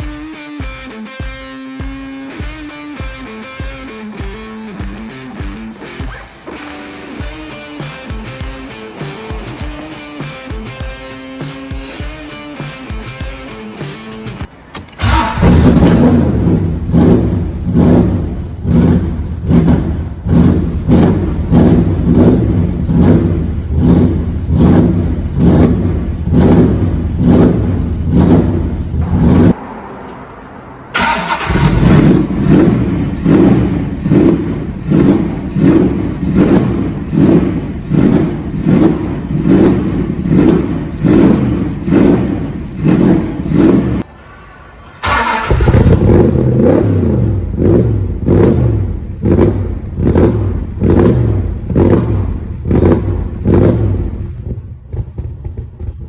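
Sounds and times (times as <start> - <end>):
pulsing car exhaust: 15.0 - 29.9, 30.9 - 44.2, 45.0 - 56.0.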